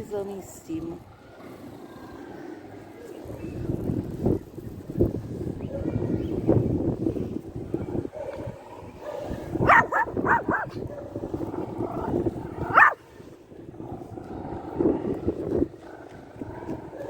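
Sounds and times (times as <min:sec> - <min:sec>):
dog barking: 0:07.8 - 0:11.2, 0:11.9 - 0:13.0.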